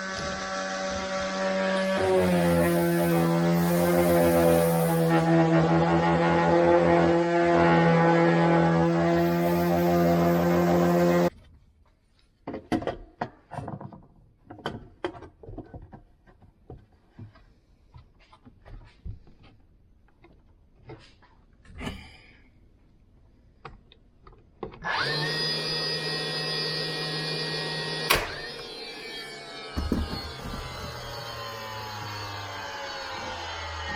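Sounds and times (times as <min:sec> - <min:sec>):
power tool motor running: 0:00.0 - 0:11.3, 0:24.8 - 0:33.9.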